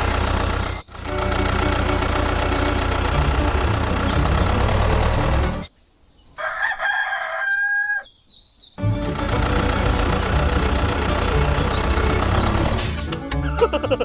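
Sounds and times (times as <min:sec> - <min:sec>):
small engine running: 0:00.0 - 0:05.7, 0:08.9 - 0:13.0
rooster crowing: 0:06.4 - 0:08.1.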